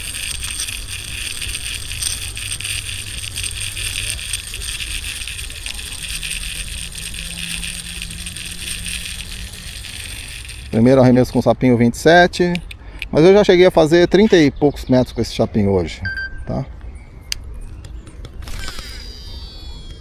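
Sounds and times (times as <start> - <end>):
fishing reel whirring and ticking: 0.0 - 13.1, 18.4 - 20.0.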